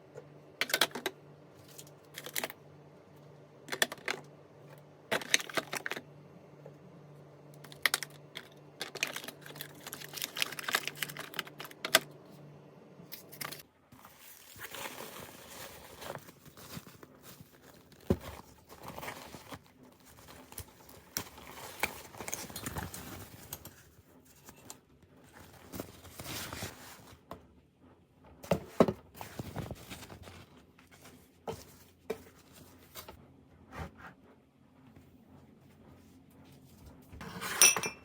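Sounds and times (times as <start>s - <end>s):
packaging rustling: 7.9s - 12.0s, 14.0s - 24.7s, 25.3s - 27.2s, 28.6s - 33.2s.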